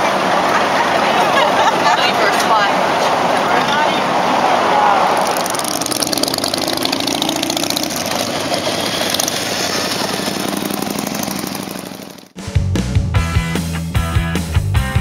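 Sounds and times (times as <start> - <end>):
motorcycle engines running: 5.0 - 12.4
rock music: 12.4 - 15.0.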